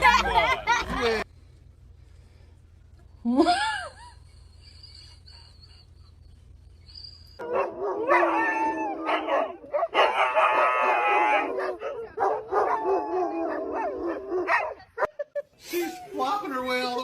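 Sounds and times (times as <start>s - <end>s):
dog howling: 7.4s - 14.9s.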